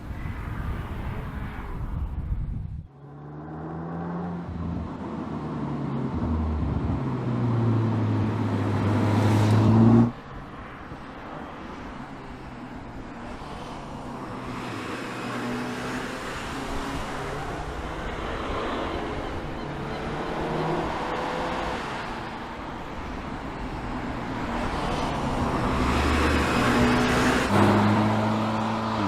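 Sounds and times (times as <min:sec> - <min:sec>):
car engine accelerating: 0:02.9 - 0:10.2.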